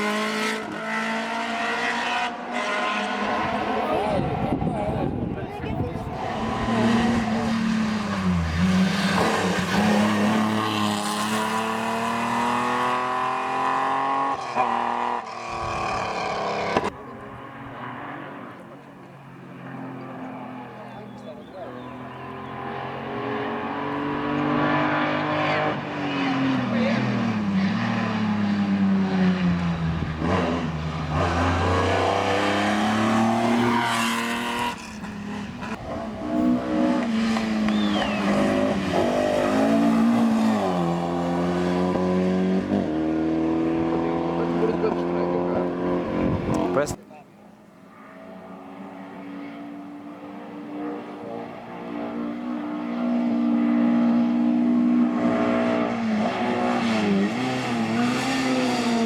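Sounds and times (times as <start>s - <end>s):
race car engine at full throttle: 0.0s - 59.0s.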